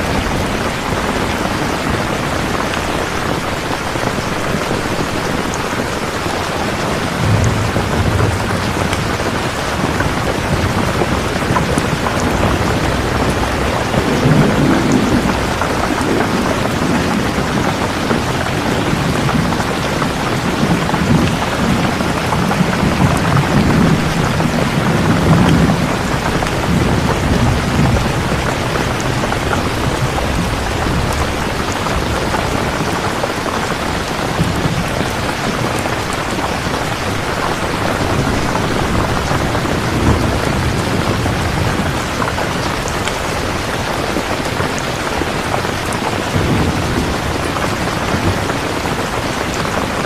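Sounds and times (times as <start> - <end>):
heavy rain: 0.0 - 50.0
rolling thunder: 0.0 - 50.0.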